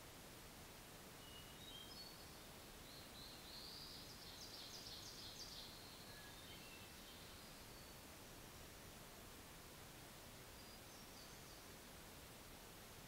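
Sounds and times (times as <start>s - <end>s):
songbird singing: 1.2s - 8.2s, 10.5s - 11.8s.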